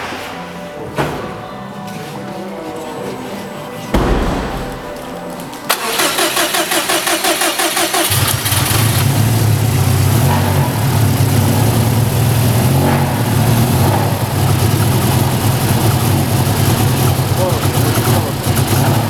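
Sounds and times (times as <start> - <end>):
car engine idling loudly: 7.3 - 19.0.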